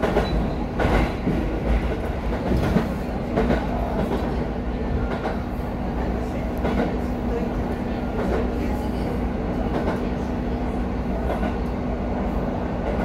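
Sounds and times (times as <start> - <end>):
wheels clacking over rail joints: 0.0 - 4.4
train rumbling: 0.0 - 13.0.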